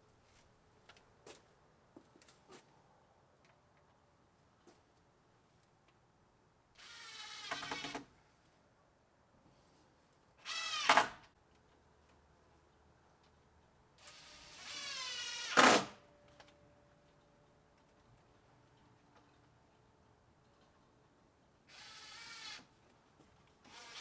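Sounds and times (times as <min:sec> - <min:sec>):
power drill motor whine: 0:23.7 - 0:24.0.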